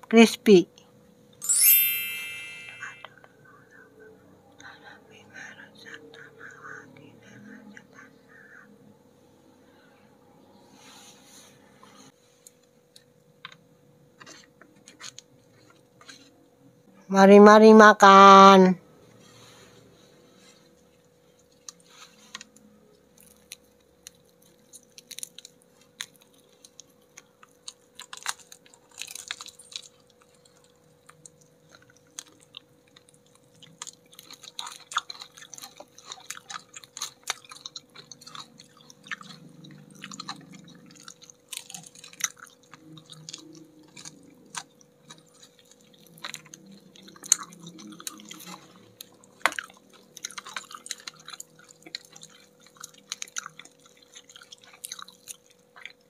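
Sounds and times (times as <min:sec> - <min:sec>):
chewing crispy fried chicken: 0:03.1 - 0:10.7, 0:11.5 - 0:17.0, 0:18.8 - 0:56.0
crackles of fried coating: 0:20.3 - 0:56.0.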